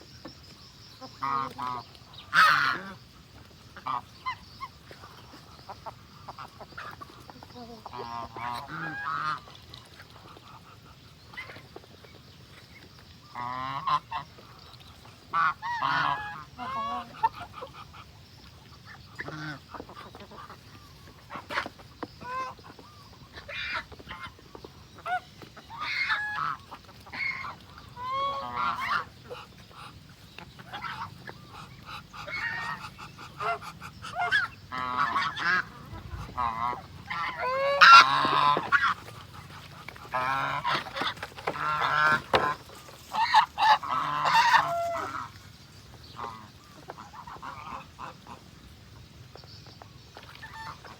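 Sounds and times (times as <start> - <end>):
geese honking: 1.0 - 3.0, 7.8 - 9.6, 13.3 - 14.3, 15.3 - 17.7, 25.0 - 30.0, 30.6 - 45.4, 46.1 - 48.4.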